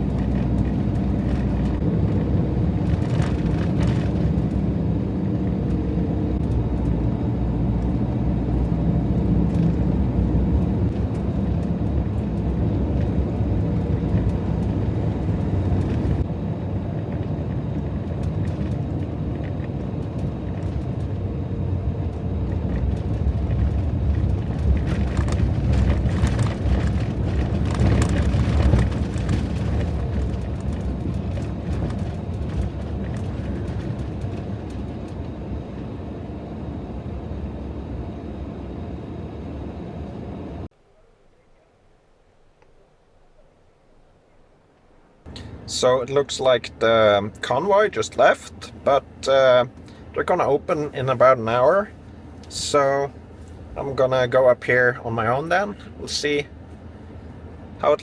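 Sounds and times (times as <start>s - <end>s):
van engine and road rumble: 0.0s - 40.8s, 43.6s - 58.0s.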